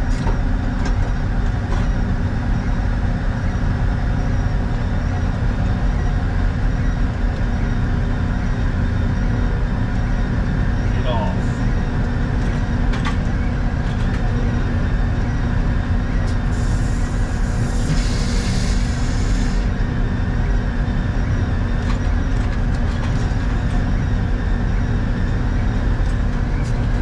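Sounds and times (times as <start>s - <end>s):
sawmill machinery drone: 0.0s - 27.0s
hiss: 16.5s - 19.7s.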